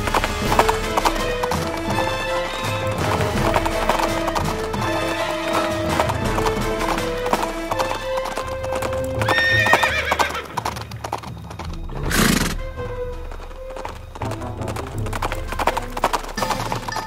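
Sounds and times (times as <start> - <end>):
background music: 0.0 - 17.0
horse hooves galloping: 0.0 - 17.0
horse whinnying: 0.1 - 12.8.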